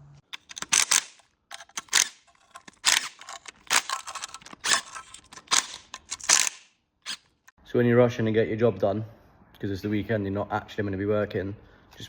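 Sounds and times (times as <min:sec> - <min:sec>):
metallic clicks of hand tools: 0:00.3 - 0:07.5.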